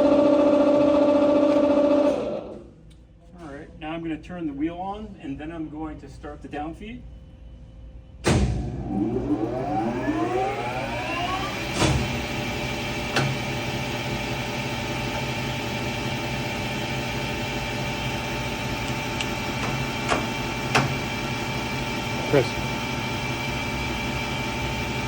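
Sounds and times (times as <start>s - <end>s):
grinding wheel whine and hum: 0.0s - 2.8s, 8.4s - 25.0s.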